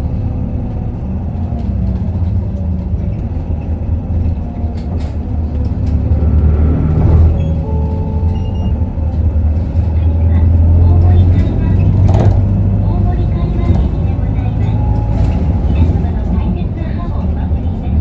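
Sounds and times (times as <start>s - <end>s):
bus diesel engine running: 0.0s - 18.0s.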